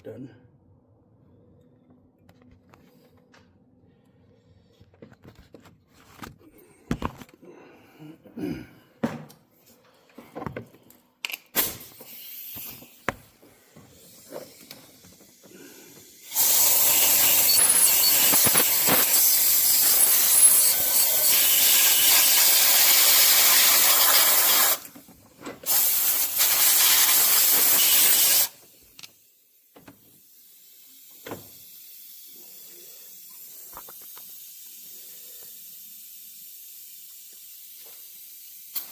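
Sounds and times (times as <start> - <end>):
compressed air blasting: 11.5 - 25.0, 25.6 - 28.7.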